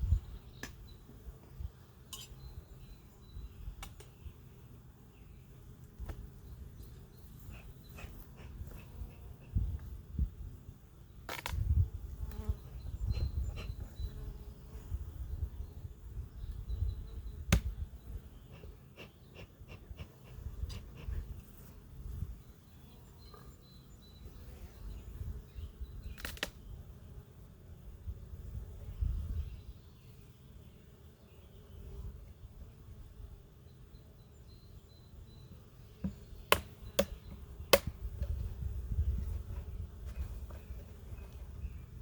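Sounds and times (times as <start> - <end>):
honeybees buzzing: 35.0 - 42.0.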